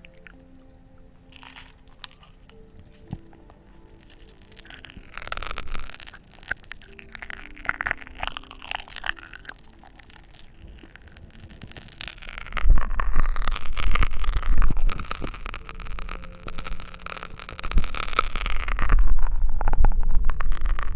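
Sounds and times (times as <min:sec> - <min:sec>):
mouth clicks and hiss: 0:00.0 - 0:20.9
low rumble on microphone: 0:04.8 - 0:20.9.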